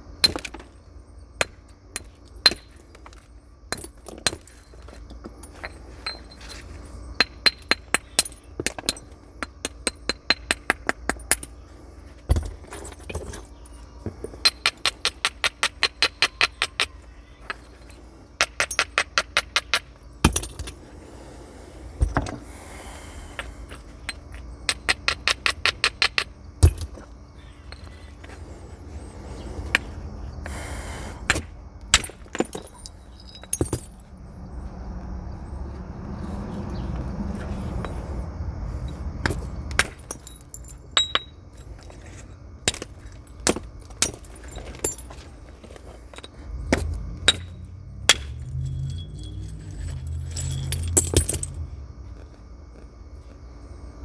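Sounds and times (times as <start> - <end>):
stone scraping rustle: 44.4 - 54.0.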